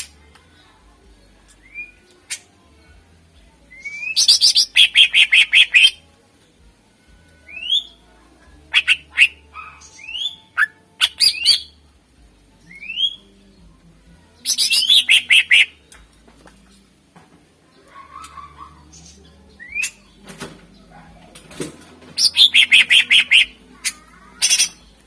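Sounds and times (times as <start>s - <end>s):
bird singing: 3.7s - 6.0s, 8.7s - 11.8s, 12.6s - 13.5s, 14.4s - 15.8s, 17.7s - 21.2s, 22.1s - 25.0s.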